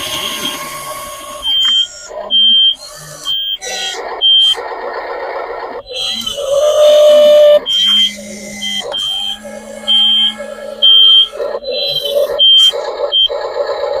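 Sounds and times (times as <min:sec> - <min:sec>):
low warbling tones: 0:02.4 - 0:12.2.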